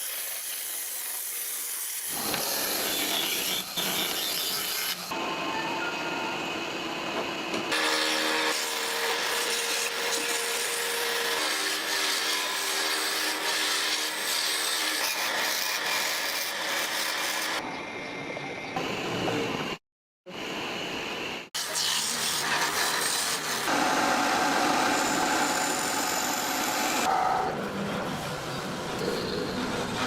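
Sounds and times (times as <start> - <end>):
faint machine tone: 5.2 - 6.8.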